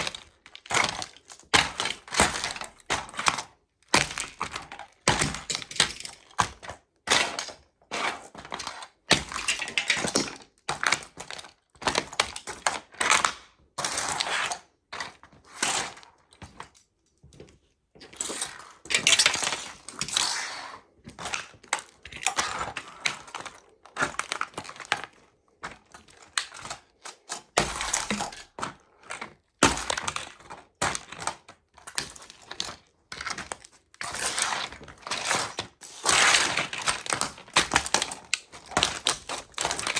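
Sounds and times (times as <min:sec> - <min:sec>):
toy trucks crunching underfoot: 0:00.0 - 0:39.9.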